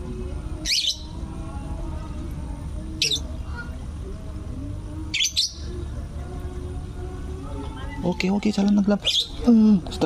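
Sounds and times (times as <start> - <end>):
low background noise: 0.0 - 10.0
bird chirping: 3.0 - 3.3, 9.0 - 9.4.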